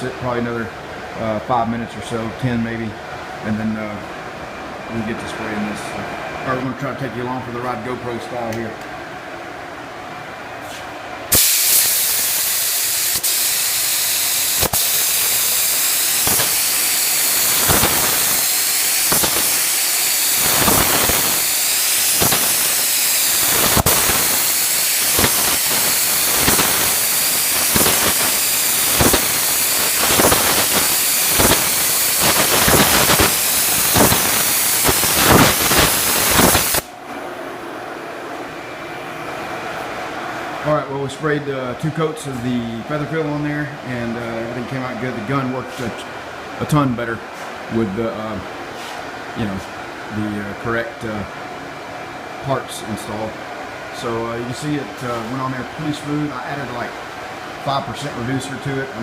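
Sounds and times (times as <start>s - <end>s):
paint spray gun hissing: 11.3s - 36.9s.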